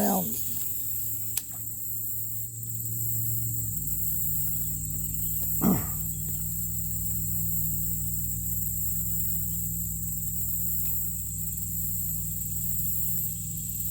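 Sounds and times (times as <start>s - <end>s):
high-pitched insect drone: 0.0s - 13.9s
low hum: 0.0s - 13.9s
click: 1.3s - 1.6s.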